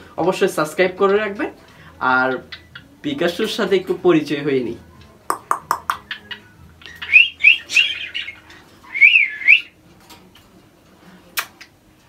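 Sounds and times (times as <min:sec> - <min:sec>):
parrot clicks: 0:05.3 - 0:06.0
parrot whistling calls: 0:05.3 - 0:09.8.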